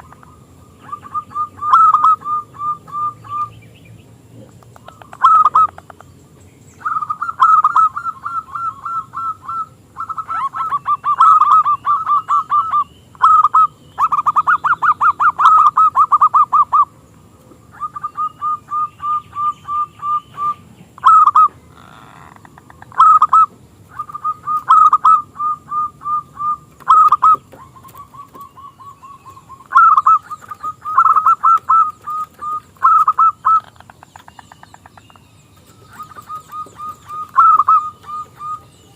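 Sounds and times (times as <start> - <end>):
dove cooing: 0.0 - 3.6, 4.4 - 6.0, 6.8 - 17.0, 17.7 - 35.0, 35.7 - 38.9.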